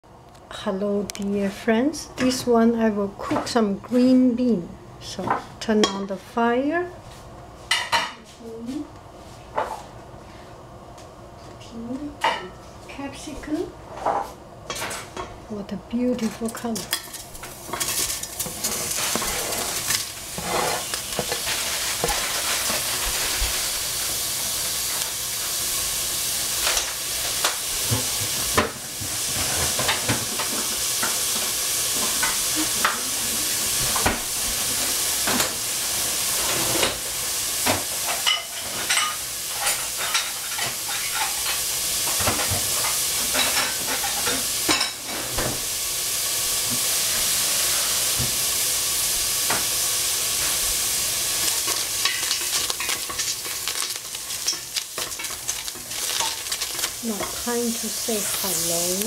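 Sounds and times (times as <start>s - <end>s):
vegetables sizzling in hot oil: 16.0s - 59.0s
spatula scraping and knocking pan: 16.8s - 23.6s.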